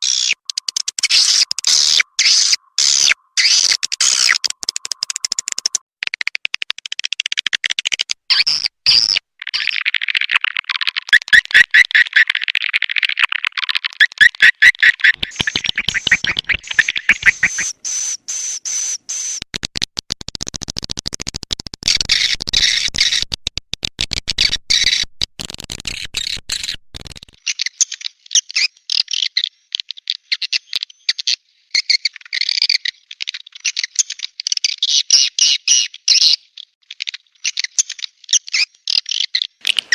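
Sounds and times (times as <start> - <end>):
high-pitched bird chirping: 0.0 - 5.8, 14.1 - 19.4.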